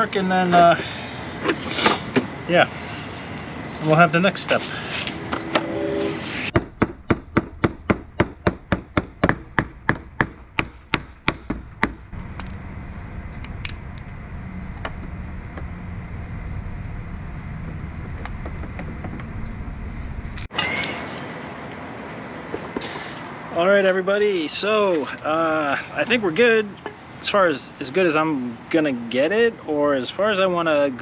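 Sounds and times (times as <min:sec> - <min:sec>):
hammer striking metal door: 0:06.5 - 0:12.1.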